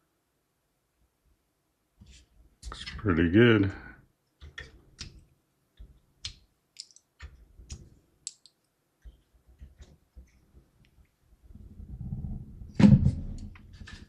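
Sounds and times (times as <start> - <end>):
light clicks and taps: 4.3 - 11.2.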